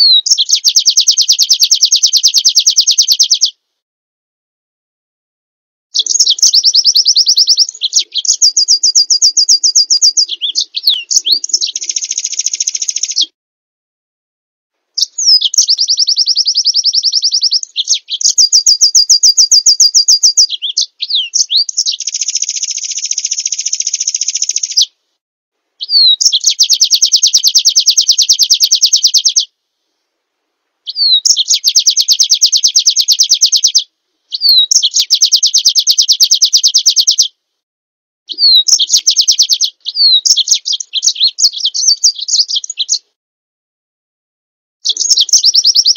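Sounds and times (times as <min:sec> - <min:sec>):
bird trilling and chattering: 0:00.0 - 0:03.5, 0:06.0 - 0:13.3, 0:15.0 - 0:24.9, 0:25.8 - 0:29.5, 0:30.9 - 0:37.3, 0:38.3 - 0:43.1, 0:44.8 - 0:45.9.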